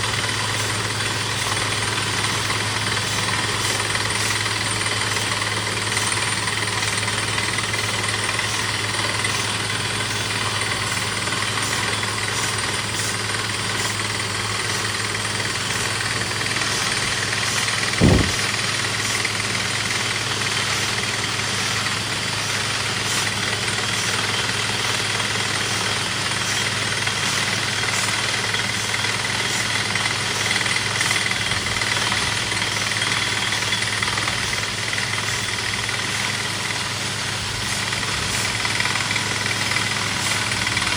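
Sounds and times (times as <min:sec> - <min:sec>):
engine humming: 0:00.0 - 0:18.6
rattling drilling noise: 0:00.0 - 0:40.9
loud thump: 0:18.0 - 0:18.5.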